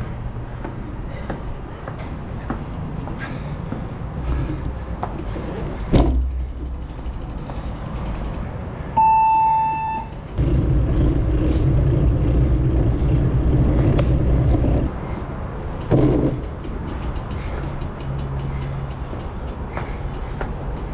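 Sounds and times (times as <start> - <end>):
road traffic rumbling: 0.0 - 20.9
horn beep: 9.0 - 10.1.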